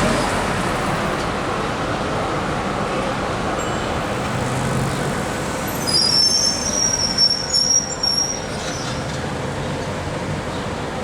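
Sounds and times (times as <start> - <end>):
tram rumbling: 0.0 - 11.0
steel wheels squealing on rails: 3.5 - 10.0.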